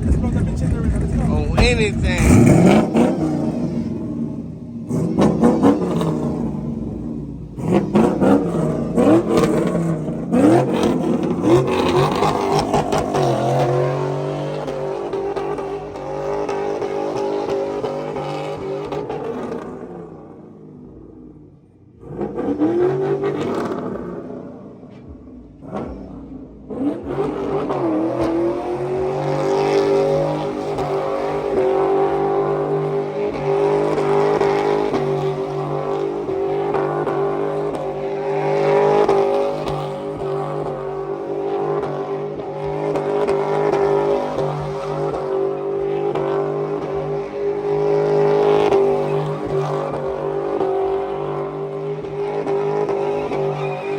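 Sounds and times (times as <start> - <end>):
vehicle engine revving: 0.0 - 21.3, 21.9 - 53.9.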